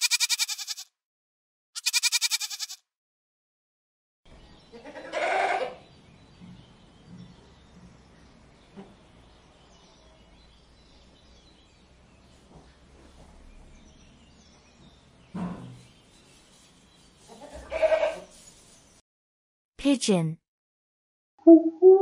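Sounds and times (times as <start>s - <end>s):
goat bleating: 0.0s - 0.9s, 1.8s - 2.8s, 4.8s - 5.8s, 17.3s - 18.3s.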